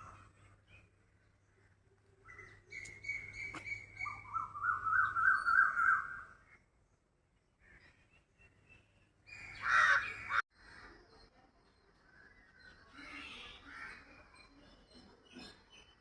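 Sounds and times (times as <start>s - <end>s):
bird piping and trilling: 0.0s - 6.6s.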